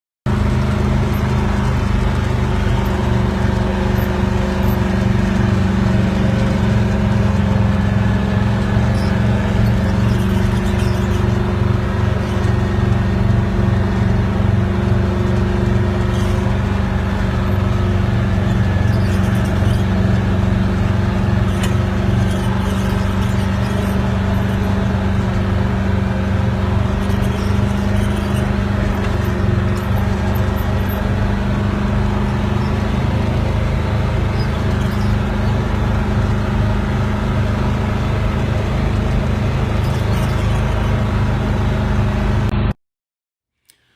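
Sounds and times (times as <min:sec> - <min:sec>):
truck engine running: 0:00.3 - 0:42.7.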